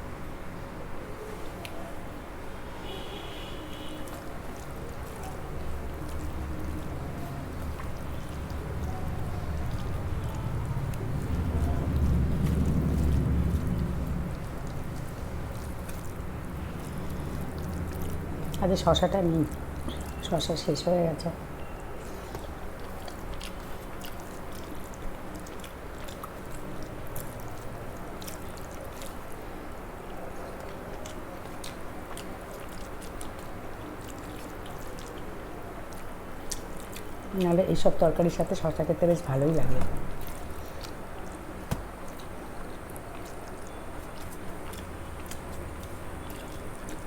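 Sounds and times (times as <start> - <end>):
person chewing food: 4.1 - 18.6, 22.0 - 37.4, 40.0 - 47.0.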